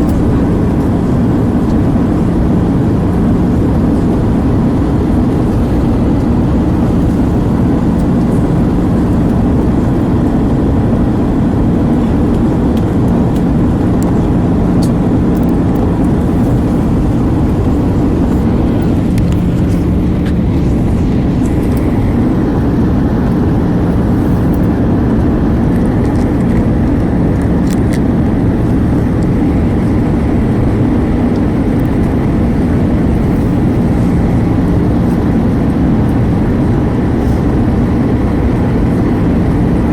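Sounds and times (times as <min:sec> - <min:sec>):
airliner cabin engine rumble: 0:00.0 - 0:39.9
faint steady hum: 0:00.0 - 0:39.9.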